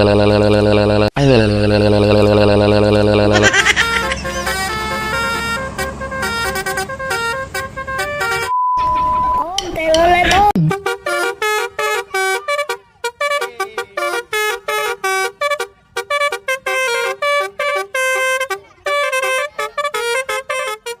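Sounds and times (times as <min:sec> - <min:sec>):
bus horn melody: 0:01.6 - 0:08.6, 0:10.7 - 0:21.0.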